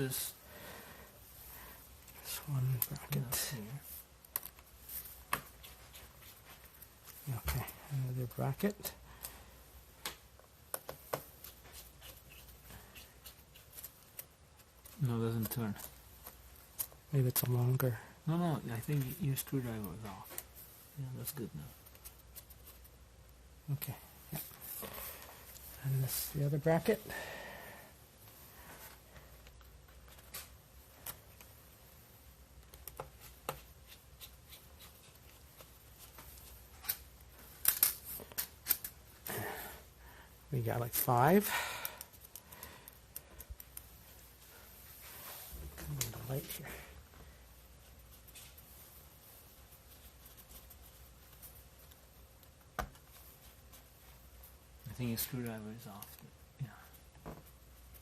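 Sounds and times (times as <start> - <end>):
small metal parts handling: 36.8 - 39.0.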